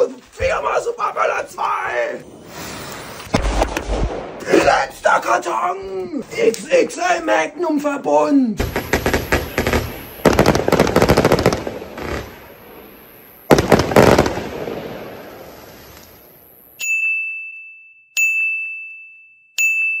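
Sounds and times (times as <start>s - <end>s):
fireworks cracking and banging: 1.8s - 5.1s, 8.6s - 16.2s.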